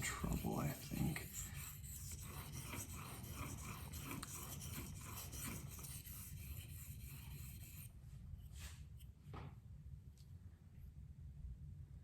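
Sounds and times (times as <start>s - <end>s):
knife scraping on whetstone: 0.0s - 7.9s.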